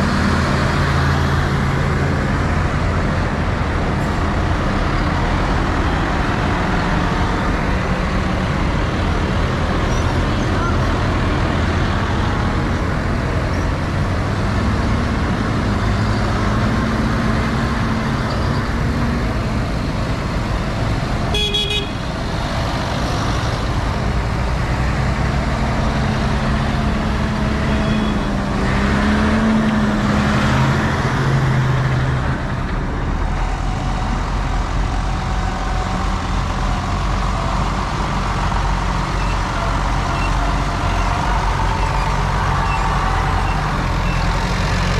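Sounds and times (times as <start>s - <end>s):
tractor engines running: 0.0s - 44.9s
horn toot: 21.3s - 22.0s.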